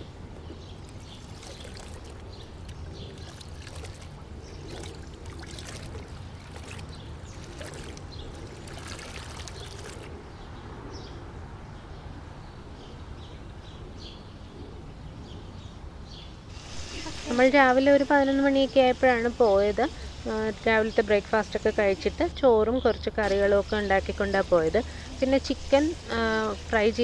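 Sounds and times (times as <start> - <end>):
flowing water: 0.0 - 10.3, 16.6 - 17.8, 23.2 - 27.0.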